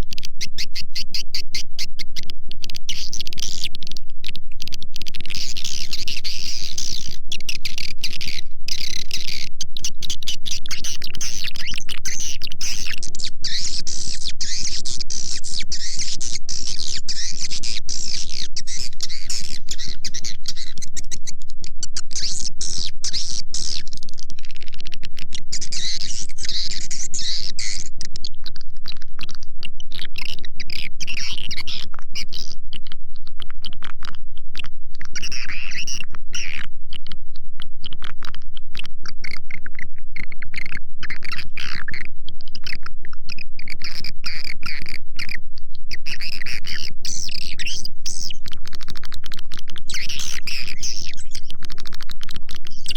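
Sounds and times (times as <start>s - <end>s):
swiftlets chirping and twittering: 49.8s - 52.9s.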